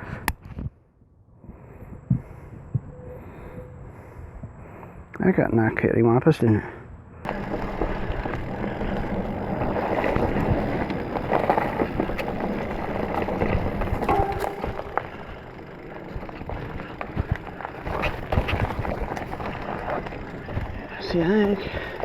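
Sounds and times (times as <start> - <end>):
bike rattling: 7.2 - 22.0
bike tyres on rocky trail: 7.2 - 22.0.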